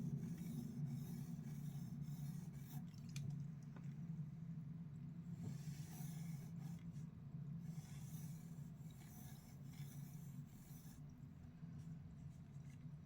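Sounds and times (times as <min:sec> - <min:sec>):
steady low hum: 0:00.0 - 0:13.0
pencil scratching on paper: 0:00.3 - 0:02.8, 0:05.5 - 0:06.8, 0:07.7 - 0:11.0.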